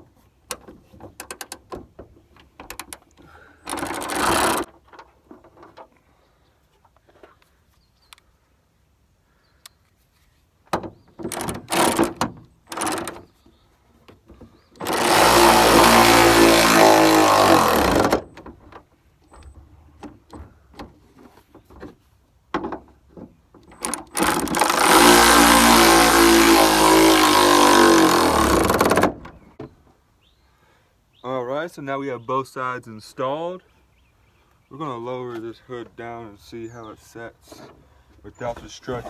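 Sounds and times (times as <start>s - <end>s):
tool handling clicks and rattles: 0.5s - 5.9s, 11.2s - 13.3s, 23.5s - 25.5s
cordless power driver running: 3.7s - 4.7s, 14.8s - 18.3s, 23.8s - 29.2s.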